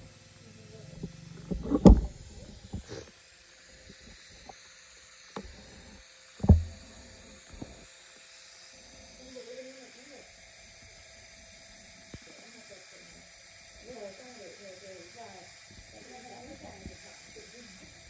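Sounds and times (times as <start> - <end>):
knocks and clunks of tools: 1.0 - 3.0, 6.4 - 6.8.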